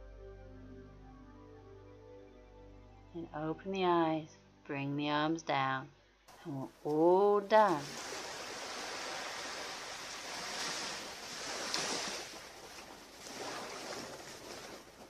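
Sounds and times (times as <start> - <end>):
ocean surf washing on beach: 7.6 - 15.0.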